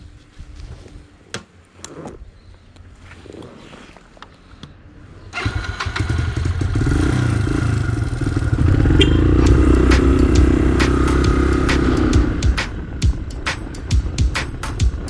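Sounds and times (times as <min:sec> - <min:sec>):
motorcycle engine running: 0:05.4 - 0:15.0.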